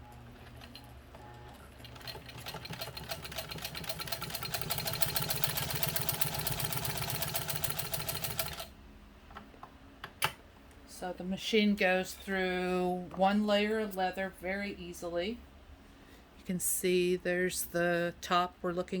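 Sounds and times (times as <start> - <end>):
sewing machine stitching: 0.4 - 8.7.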